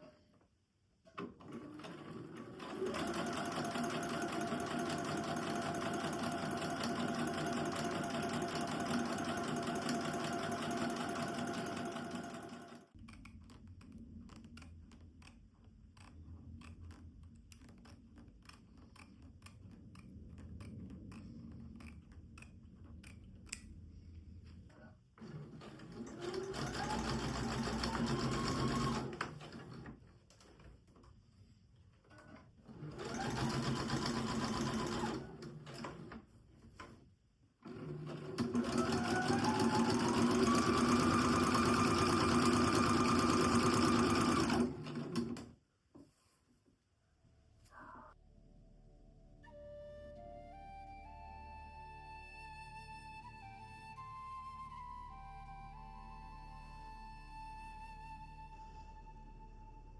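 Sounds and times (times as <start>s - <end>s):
sewing machine stitching: 1.2s - 12.9s, 25.2s - 30.0s, 32.7s - 36.2s, 37.6s - 45.6s.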